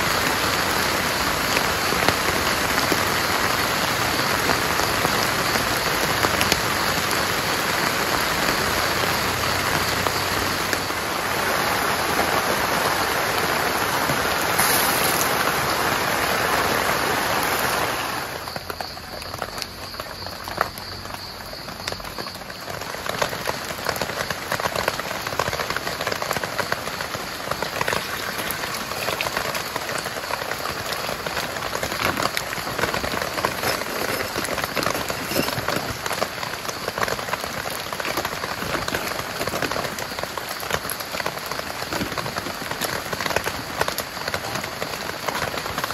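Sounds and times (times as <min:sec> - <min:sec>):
heavy rain falling: 0:00.0 - 0:45.9.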